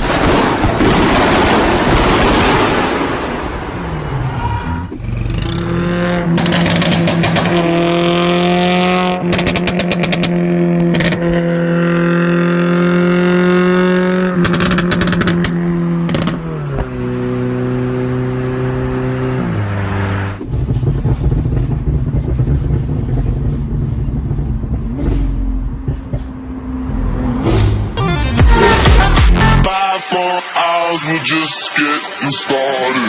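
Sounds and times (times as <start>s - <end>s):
car engine at high revs: 3.4s - 28.0s
exhaust pops and bangs: 6.3s - 8.0s, 9.2s - 11.4s, 20.4s - 26.4s.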